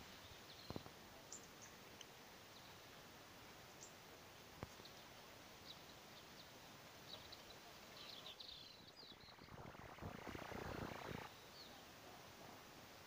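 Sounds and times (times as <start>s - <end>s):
short bird chirps: 8.0s - 11.8s.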